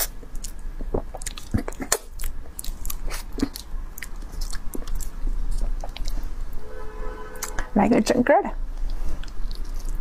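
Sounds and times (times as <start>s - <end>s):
person chewing with wet smacks: 0.0s - 6.3s, 8.7s - 10.0s.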